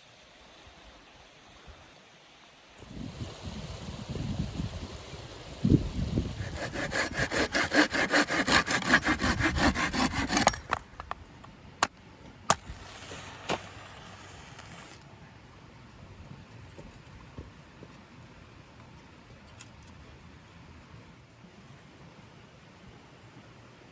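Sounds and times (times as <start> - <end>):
saw cutting wood: 5.6 - 11.1.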